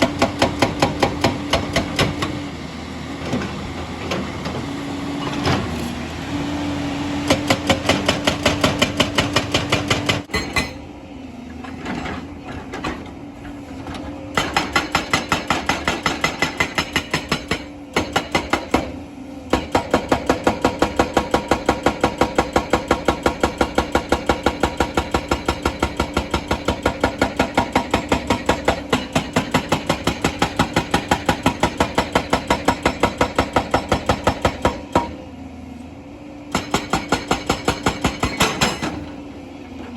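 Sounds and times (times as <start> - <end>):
hydraulic rock breaker hammering stone: 0.0 - 2.4, 7.2 - 10.8, 14.3 - 35.3, 36.5 - 39.1
excavator engine drone: 0.0 - 14.4, 23.0 - 39.9.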